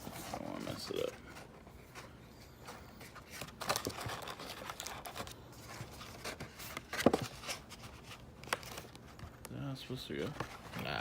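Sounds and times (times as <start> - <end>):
packaging crinkling and tearing: 3.3 - 9.1.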